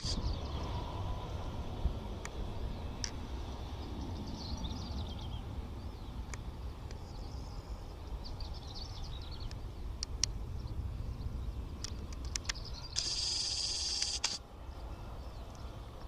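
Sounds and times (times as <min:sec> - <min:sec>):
low outdoor rumble: 0:00.0 - 0:16.0
small birds chirping: 0:03.6 - 0:15.7
sharp clicks: 0:11.8 - 0:14.4.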